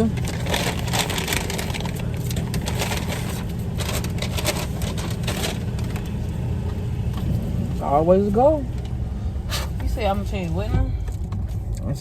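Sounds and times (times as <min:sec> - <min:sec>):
scratchy rustling noises: 0:00.0 - 0:06.4
car engine hum inside cabin: 0:00.0 - 0:12.0.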